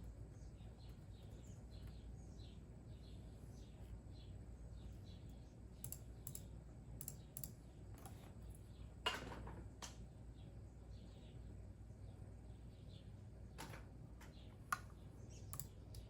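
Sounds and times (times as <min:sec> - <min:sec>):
faint bird chirps: 0:00.0 - 0:07.7
computer keyboard keystrokes: 0:05.8 - 0:08.2, 0:14.7 - 0:16.0.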